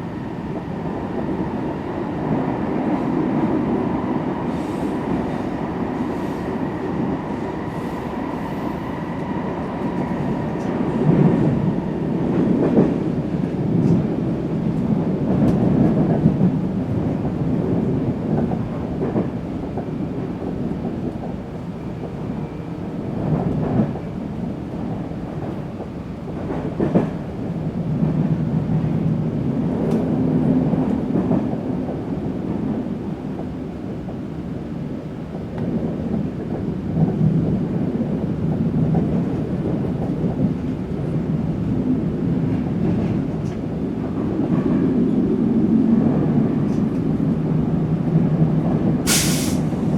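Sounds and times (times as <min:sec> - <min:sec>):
metro train rumbling on rails: 0:00.0 - 0:49.9.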